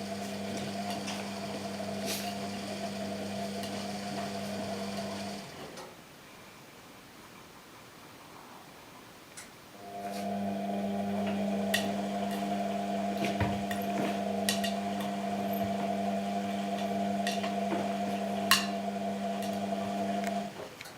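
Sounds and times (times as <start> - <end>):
washing machine humming: 0.0 - 5.6, 9.8 - 20.6.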